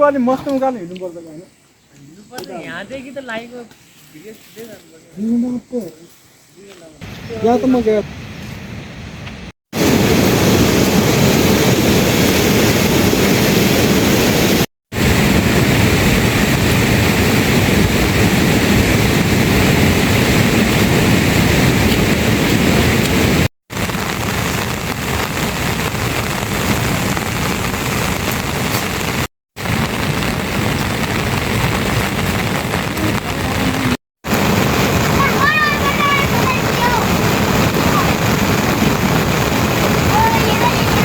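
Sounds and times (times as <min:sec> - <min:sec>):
heavy rain: 0:09.7 - 0:41.0.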